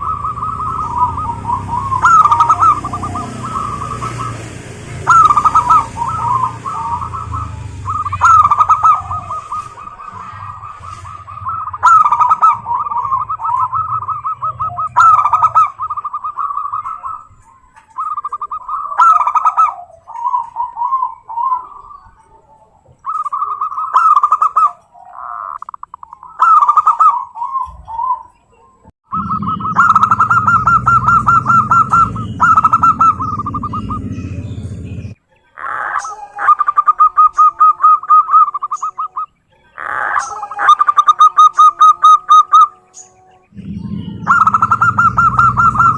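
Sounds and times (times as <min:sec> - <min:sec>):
doves cooing: 0:00.0 - 0:45.9
low rumble: 0:29.1 - 0:35.2, 0:43.5 - 0:45.9.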